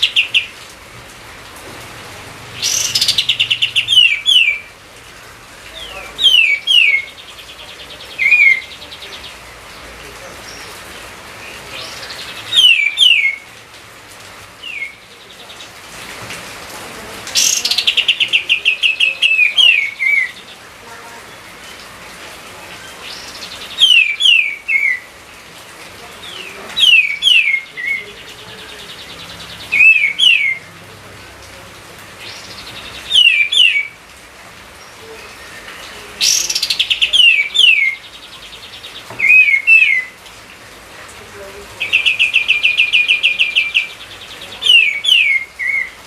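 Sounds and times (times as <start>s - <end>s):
songbird whistling: 12.5s - 13.4s, 23.8s - 25.1s, 29.8s - 30.6s, 32.8s - 33.9s, 39.2s - 40.1s.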